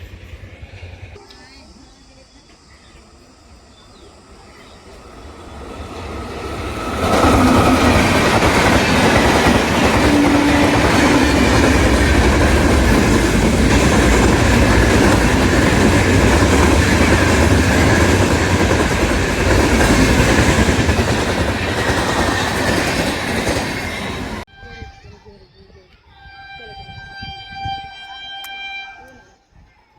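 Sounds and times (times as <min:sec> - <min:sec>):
train wheels clattering on rails: 0:04.9 - 0:24.4.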